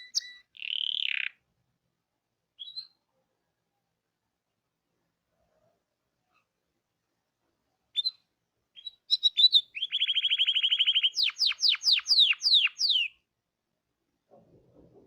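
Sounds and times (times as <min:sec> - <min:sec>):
canary singing: 0:00.0 - 0:01.4, 0:02.6 - 0:03.0, 0:08.8 - 0:13.2.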